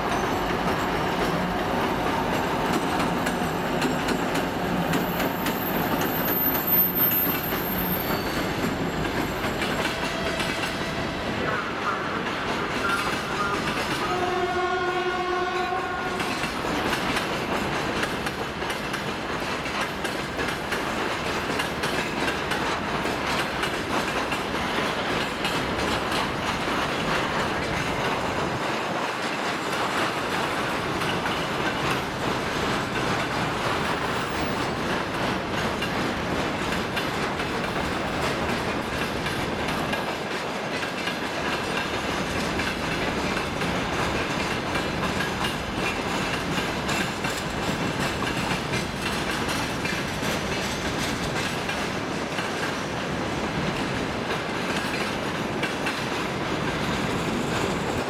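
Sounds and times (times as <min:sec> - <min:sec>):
freight train rumbling past: 0:00.0 - 0:58.0
train horn: 0:09.9 - 0:12.2, 0:12.9 - 0:16.5.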